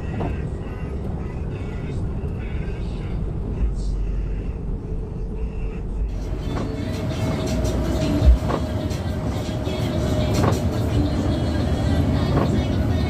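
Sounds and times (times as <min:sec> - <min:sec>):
bus engine and road rumble: 0:00.0 - 0:13.0
music: 0:06.1 - 0:13.0.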